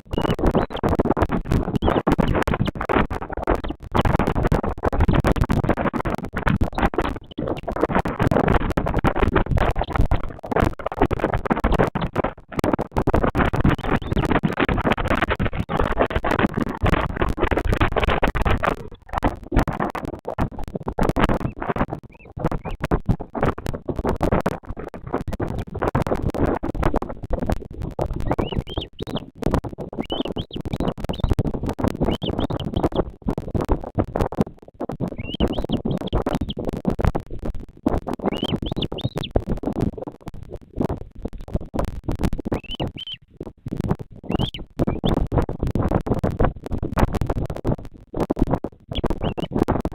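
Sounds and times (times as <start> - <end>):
crackling and rustling on microphone: 0.0 - 49.9
bird chirping: 28.3 - 29.2, 30.0 - 31.3, 32.1 - 32.9, 35.2 - 36.0, 38.3 - 39.3, 42.6 - 43.2, 44.3 - 45.1
faint high bird calls: 38.3 - 39.3, 42.6 - 43.2, 44.3 - 44.6.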